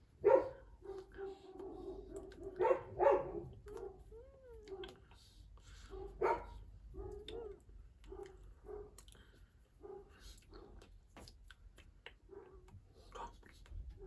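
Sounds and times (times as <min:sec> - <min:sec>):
dog barking: 0:00.2 - 0:04.1, 0:04.7 - 0:05.0, 0:05.9 - 0:09.0, 0:09.8 - 0:10.8, 0:12.3 - 0:12.7.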